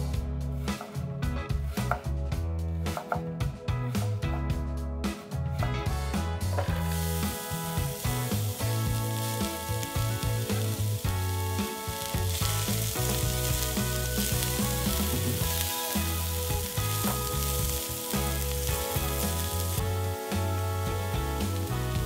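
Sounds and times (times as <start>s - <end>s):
background music: 0.0s - 22.0s
onion sizzling in oil: 6.6s - 22.0s.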